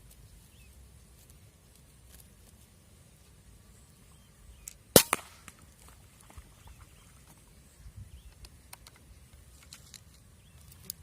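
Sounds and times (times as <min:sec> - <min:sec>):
quieter second crack: 0:04.6 - 0:06.0
air rifle shot crack: 0:04.9 - 0:05.6.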